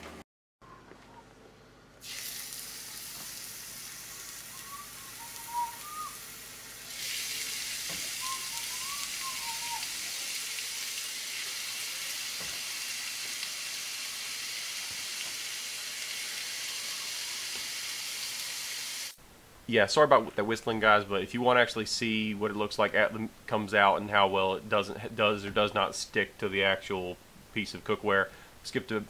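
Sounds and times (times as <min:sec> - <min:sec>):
chicken sizzling in a skillet: 0:02.0 - 0:19.2
person whistling: 0:04.5 - 0:06.2, 0:08.2 - 0:09.9.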